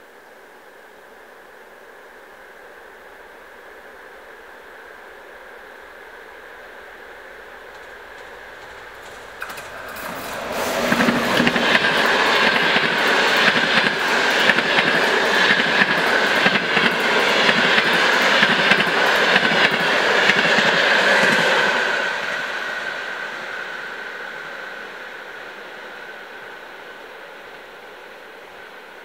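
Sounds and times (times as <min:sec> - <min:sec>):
train wheels clattering over rails: 0:07.6 - 0:21.9.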